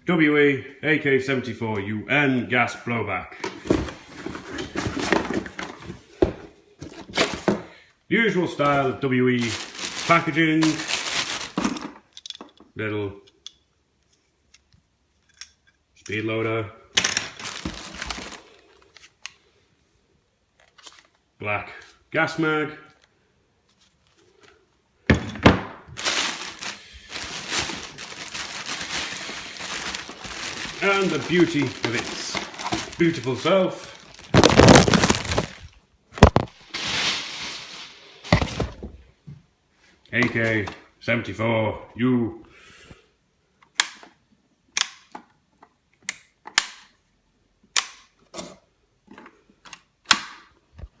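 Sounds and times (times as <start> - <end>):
packaging crinkling and rustling: 9.4 - 12.0, 17.3 - 19.2, 25.9 - 38.9.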